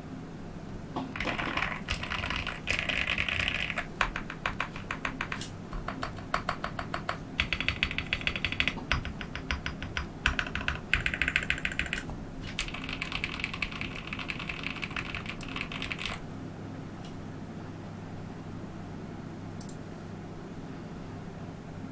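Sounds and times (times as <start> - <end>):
mechanical keyboard typing: 1.2 - 16.2.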